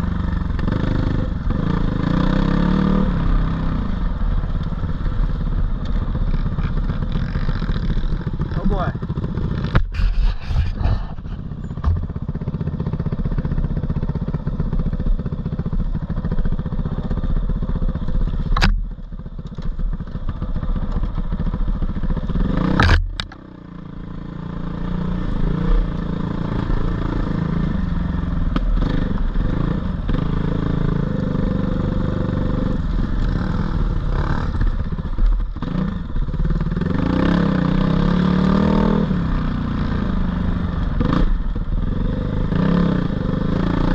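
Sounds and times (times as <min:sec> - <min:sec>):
dirt bike engine revving: 0:00.6 - 0:03.7, 0:22.2 - 0:28.2, 0:35.6 - 0:39.8
sharp knocks: 0:11.8 - 0:12.1.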